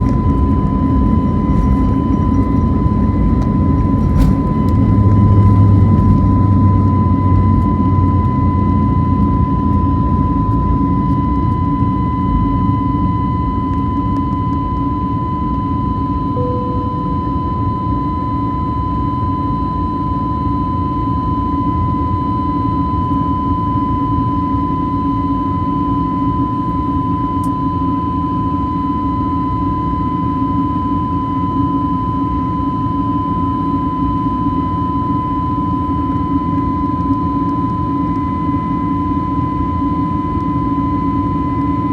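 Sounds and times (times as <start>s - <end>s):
jet engines at high thrust: 0.0s - 41.9s.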